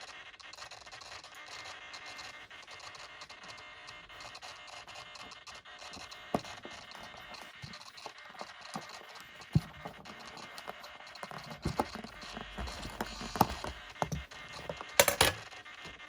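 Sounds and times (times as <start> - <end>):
faint scratching: 2.2 - 15.0.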